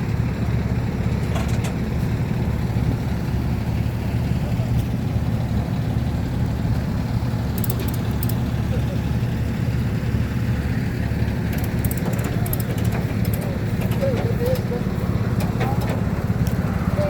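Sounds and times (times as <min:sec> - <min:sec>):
truck engine idling: 0:00.0 - 0:17.0
faint clicks: 0:07.6 - 0:08.4.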